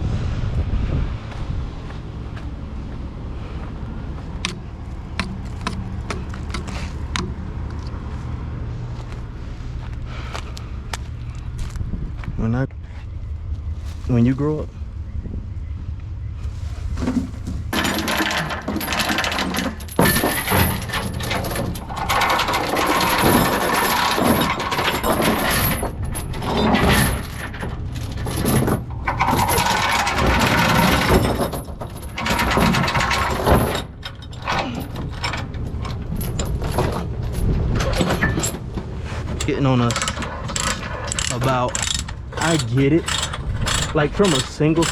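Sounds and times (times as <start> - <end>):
steel clanking and rattling: 4.4 - 7.4, 16.9 - 44.9.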